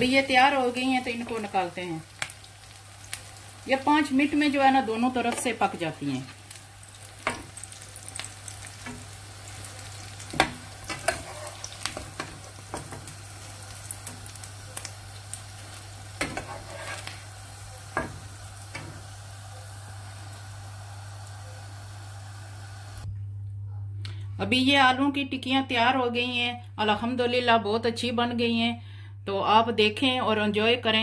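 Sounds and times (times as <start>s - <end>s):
patties sizzling in oil: 0.0s - 23.1s
metal spatula scraping a pan: 10.4s - 13.0s, 16.2s - 17.3s.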